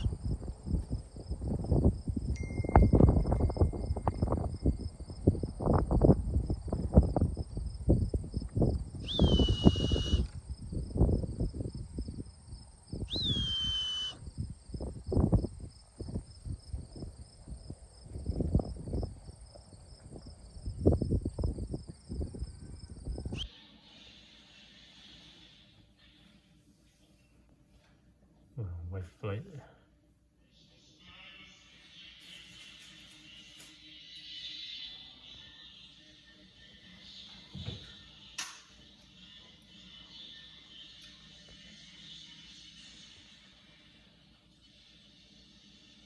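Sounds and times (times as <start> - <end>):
insects chirring: 0.0 - 23.5.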